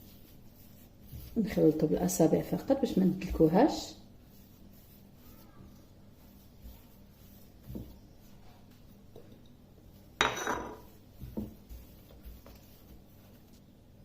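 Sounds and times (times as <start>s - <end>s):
kitchenware clattering: 10.2s - 10.9s
kitchenware knocking: 10.2s - 10.9s.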